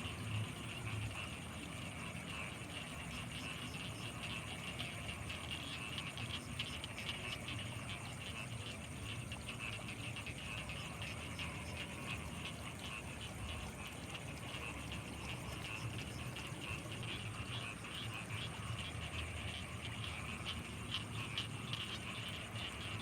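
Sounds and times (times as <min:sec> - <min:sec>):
frogs calling in chorus: 0:00.0 - 0:23.0.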